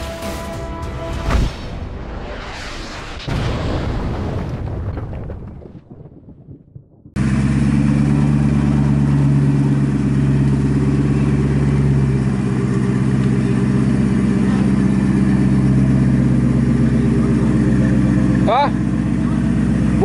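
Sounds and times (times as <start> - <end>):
car engine humming while driving: 7.2 - 20.0.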